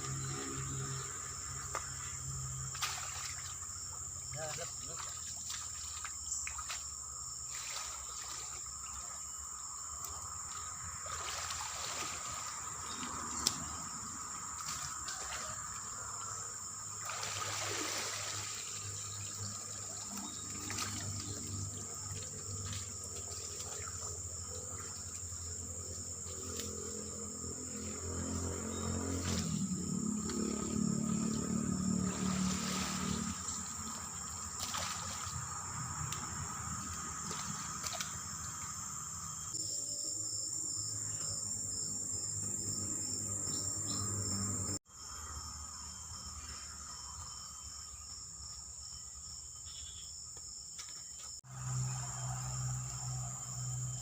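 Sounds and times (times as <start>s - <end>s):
water splashing and trickling: 0.0s - 39.6s
high insect drone: 0.0s - 54.0s.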